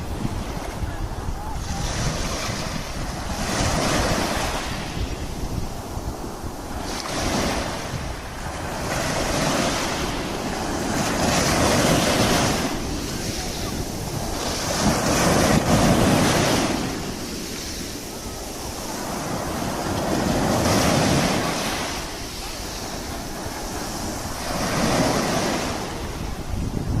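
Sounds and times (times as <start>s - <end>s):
sea waves washing in: 0.0s - 27.0s
wind rumbling on microphone: 0.0s - 27.0s.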